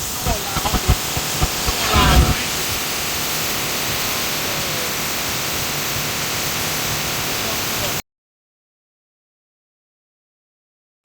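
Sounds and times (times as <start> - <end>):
steady rushing noise: 0.0 - 3.4.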